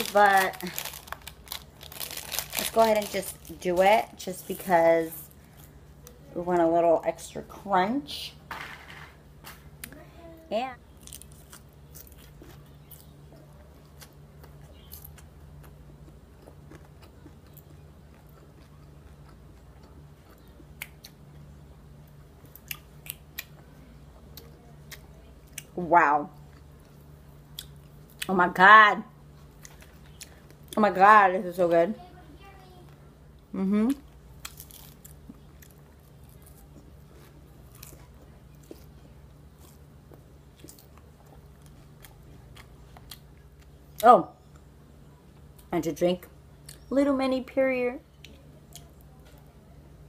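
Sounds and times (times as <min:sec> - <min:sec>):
person chewing crunchy food: 0:00.0 - 0:03.4, 0:10.9 - 0:21.5, 0:34.3 - 0:44.6
faint low hum: 0:00.0 - 0:50.0.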